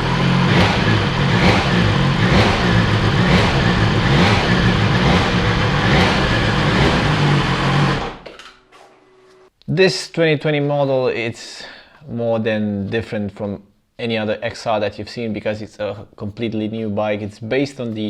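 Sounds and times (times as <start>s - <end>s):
motorcycle engine revving: 0.0s - 8.3s.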